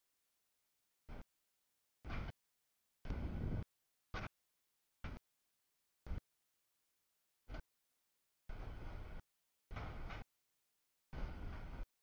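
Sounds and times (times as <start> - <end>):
freight train cars rolling: 8.5 - 10.2, 11.2 - 11.9.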